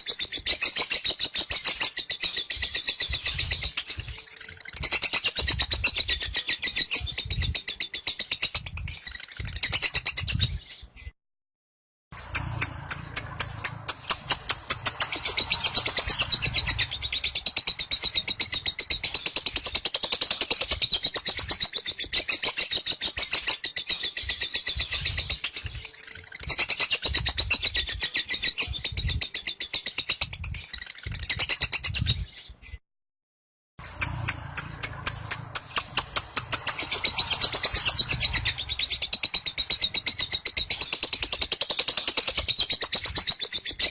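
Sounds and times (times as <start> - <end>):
lovebird chattering trill: 12.2 - 32.1, 33.8 - 43.9.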